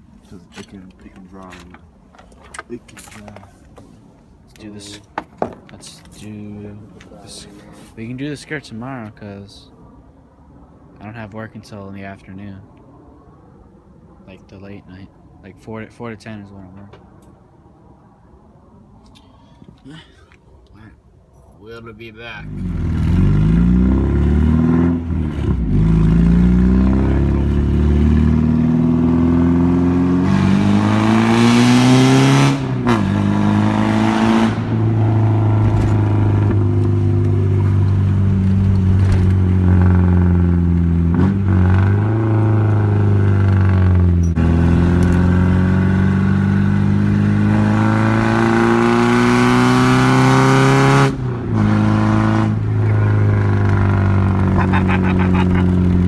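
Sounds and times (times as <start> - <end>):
car engine accelerating hard: 22.5 - 56.0.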